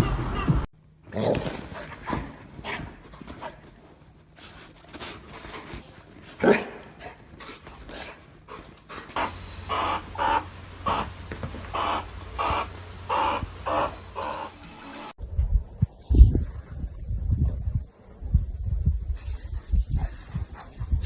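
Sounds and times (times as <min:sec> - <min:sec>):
steady low hum: 0:06.0 - 0:16.0
scattered short animal noises: 0:09.2 - 0:14.6
short repeated animal calls: 0:09.2 - 0:14.6
loud sharp animal call: 0:09.2 - 0:15.1.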